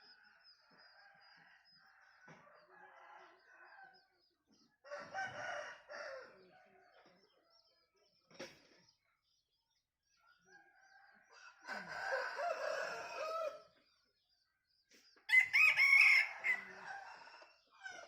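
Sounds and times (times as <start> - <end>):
rooster crowing: 11.6 - 13.6, 15.3 - 17.3.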